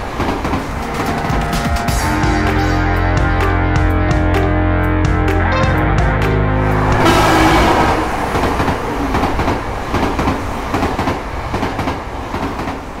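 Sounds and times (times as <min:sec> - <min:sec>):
train wheels clattering on rails: 0:00.0 - 0:02.8, 0:07.0 - 0:13.0
music: 0:00.8 - 0:08.0.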